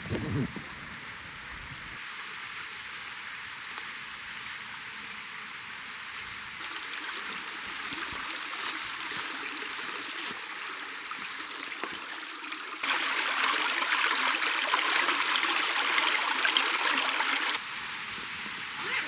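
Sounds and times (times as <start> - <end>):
stream trickling: 4.0 - 19.0.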